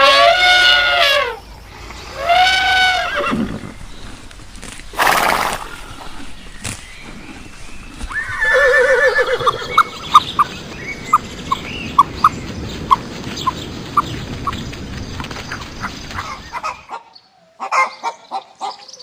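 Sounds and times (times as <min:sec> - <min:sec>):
horse whinnying: 0:02.2 - 0:03.8, 0:05.0 - 0:05.9, 0:08.1 - 0:09.9.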